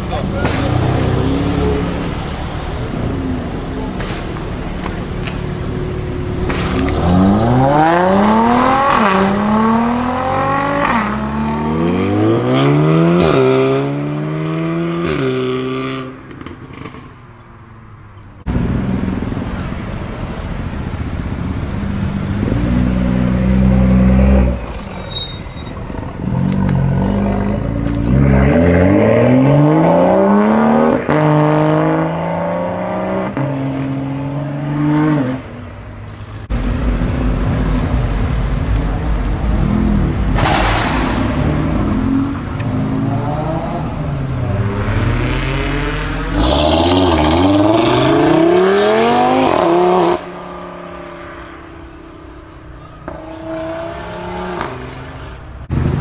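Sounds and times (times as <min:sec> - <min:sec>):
sports car engine revving: 0:00.2 - 0:17.0
car accelerating through upshifts: 0:05.8 - 0:17.0, 0:26.2 - 0:35.6, 0:41.4 - 0:51.8, 0:53.0 - 0:56.0.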